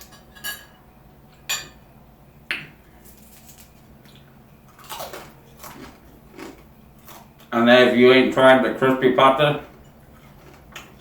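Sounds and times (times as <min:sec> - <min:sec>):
person chewing crunchy food: 0:03.0 - 0:07.5, 0:09.5 - 0:11.0.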